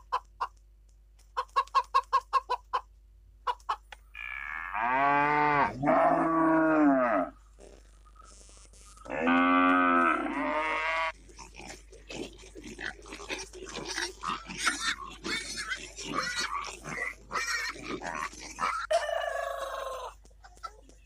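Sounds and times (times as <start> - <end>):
cow mooing: 4.2 - 7.3, 9.0 - 11.1
pigs grunting and squealing: 4.2 - 7.4, 9.0 - 20.2.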